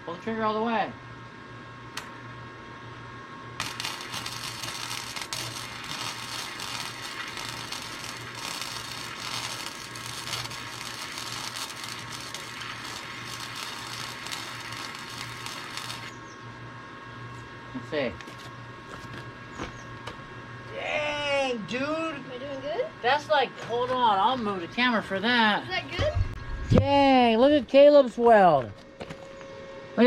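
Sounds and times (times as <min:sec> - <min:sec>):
electrical hum: 0:00.0 - 0:30.0
welder arc crackling: 0:03.6 - 0:16.2, 0:17.9 - 0:19.2.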